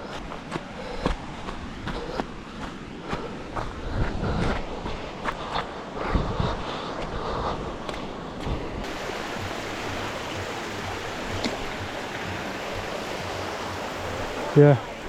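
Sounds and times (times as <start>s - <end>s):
footsteps: 0.0s - 8.7s
river water rushing: 8.0s - 15.0s.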